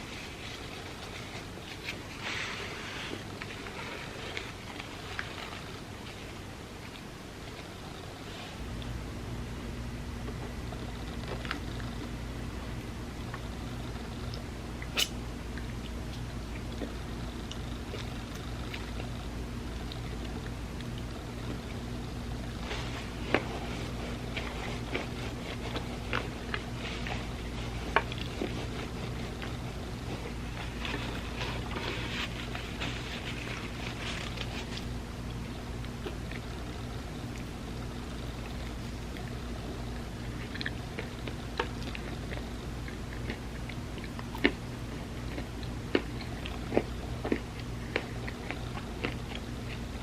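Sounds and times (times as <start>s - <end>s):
steady low hum: 0.0s - 50.0s
wet chewing clicks and smacks: 35.2s - 50.0s.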